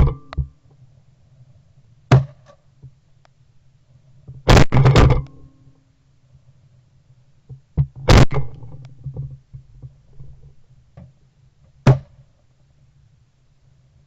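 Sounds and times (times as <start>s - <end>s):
faint low hum: 0.0s - 14.0s
sharp knocks: 11.9s - 12.2s.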